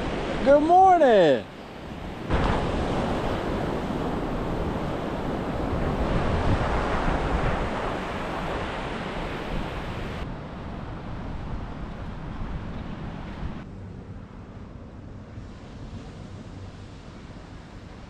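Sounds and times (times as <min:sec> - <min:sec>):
ocean surf washing on beach: 0:00.0 - 0:13.6
wind on the microphone: 0:01.4 - 0:18.0.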